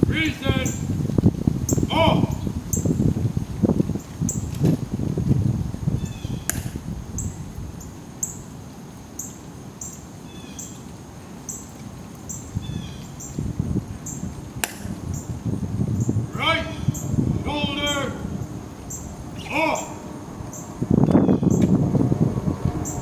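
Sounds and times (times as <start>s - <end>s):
small bird chirping: 6.0s - 6.6s, 9.2s - 10.8s, 12.3s - 14.3s
soft falling bird calls: 6.0s - 15.4s
low background rumble: 13.6s - 23.0s.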